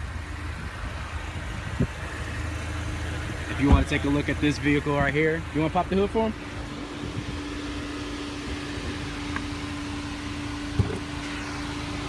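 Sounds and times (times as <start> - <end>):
car engine idling: 0.0 - 12.0
thump: 10.7 - 11.0.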